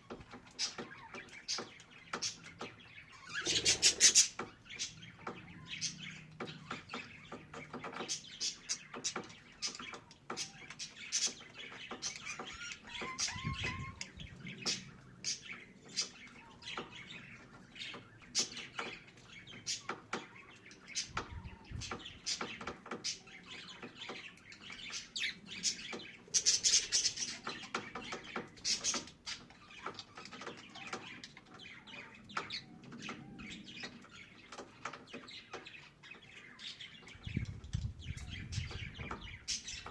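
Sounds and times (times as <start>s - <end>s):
budgerigars twittering: 0.0s - 39.9s.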